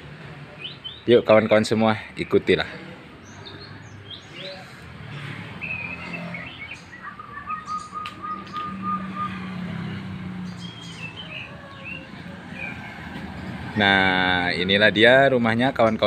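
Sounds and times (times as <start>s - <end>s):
small birds chirping: 0.2s - 14.6s
bird trill: 5.4s - 13.0s.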